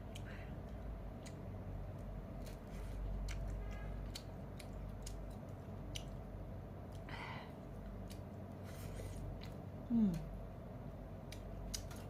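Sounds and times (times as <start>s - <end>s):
person chewing noodles: 0.0s - 9.8s, 11.2s - 12.0s
steady low hum: 0.0s - 12.0s.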